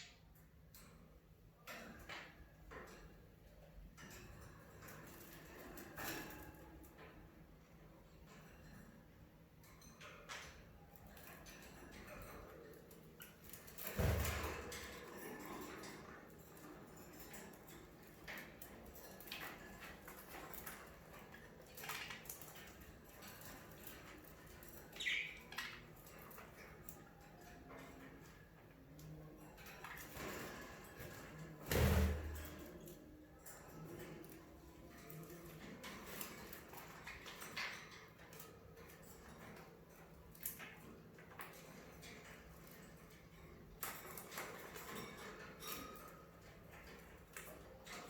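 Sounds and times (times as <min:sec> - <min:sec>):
faint budgerigar chirps: 0:25.0 - 0:25.6.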